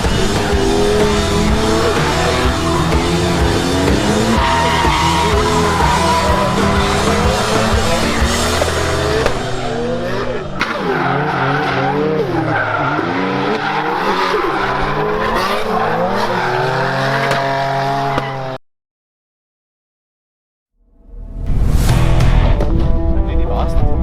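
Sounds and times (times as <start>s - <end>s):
background music: 0.0s - 10.4s, 21.2s - 24.0s
car engine revving: 0.0s - 18.6s
tyre squeal: 4.2s - 8.0s.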